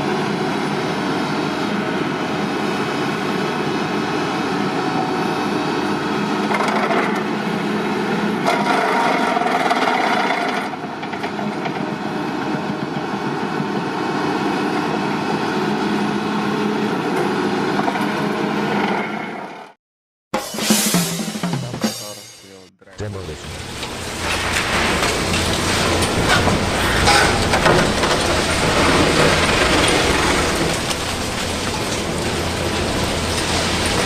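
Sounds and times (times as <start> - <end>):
excavator engine under load: 0.0 - 19.7, 23.0 - 34.0
digging work noise: 6.2 - 16.0, 22.9 - 34.0.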